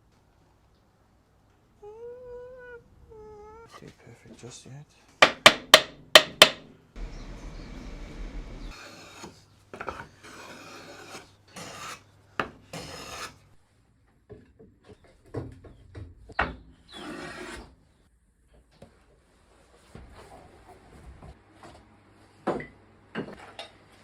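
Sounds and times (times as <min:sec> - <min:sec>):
rasp scraping wood: 0:08.8 - 0:12.0, 0:12.7 - 0:13.4.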